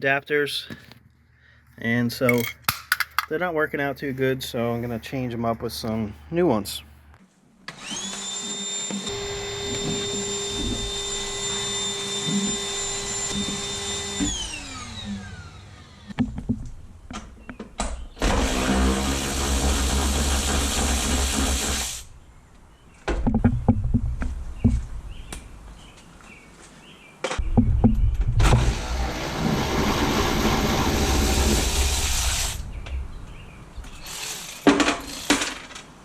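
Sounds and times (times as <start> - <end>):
power tool motor whining: 7.7 - 16.2, 18.2 - 21.9
rough noisy power tool: 7.7 - 16.2, 18.2 - 22.1, 28.4 - 32.6, 33.8 - 35.7.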